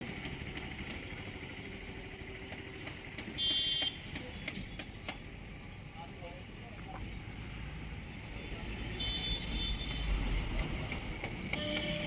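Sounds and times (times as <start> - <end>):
vehicle engine running: 0.0 - 12.0
loud high-pitched beep: 11.6 - 12.0.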